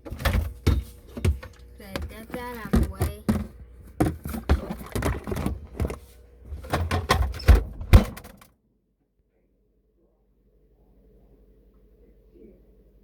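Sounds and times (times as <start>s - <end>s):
bottles clunking on fridge shelves: 0.0s - 8.5s
fridge door shutting: 0.0s - 8.5s.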